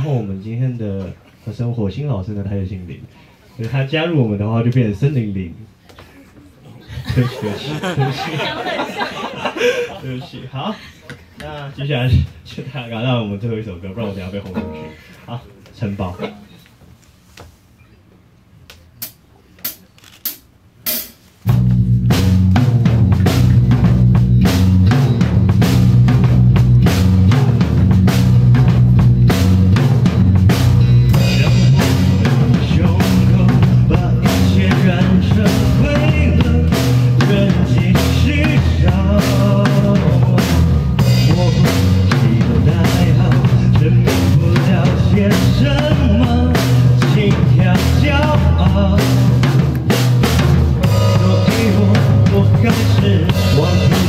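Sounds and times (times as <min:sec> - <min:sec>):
live band playing: 0:14.5 - 0:15.2, 0:20.9 - 0:54.0
drumstick clicks: 0:18.7 - 0:21.2.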